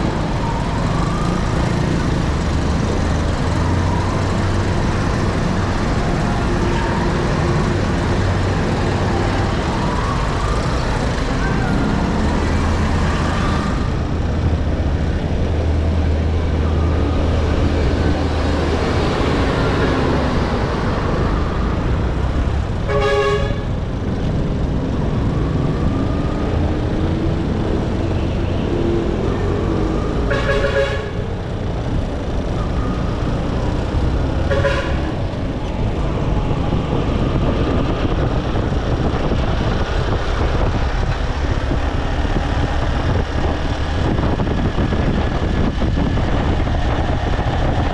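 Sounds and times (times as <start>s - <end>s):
road and wind noise: 0.0s - 47.9s
vehicle horn toots: 22.9s - 23.7s, 30.3s - 31.2s, 34.5s - 35.1s.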